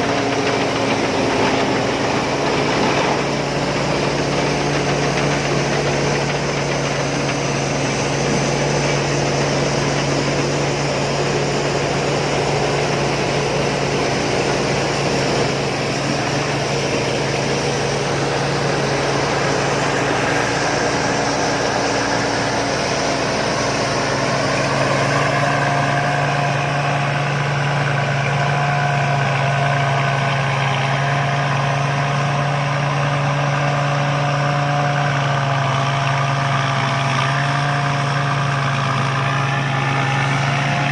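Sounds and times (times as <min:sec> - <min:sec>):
high machine whines: 0:00.0 - 0:28.0
busy mechanical noise: 0:00.0 - 0:28.6
combine harvester engine hum: 0:00.0 - 0:40.9.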